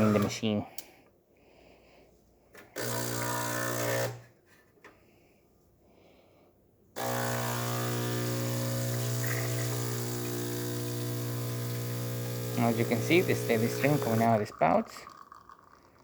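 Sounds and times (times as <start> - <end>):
espresso machine pump buzzing: 0.0 - 0.4, 2.8 - 4.2, 7.0 - 15.6.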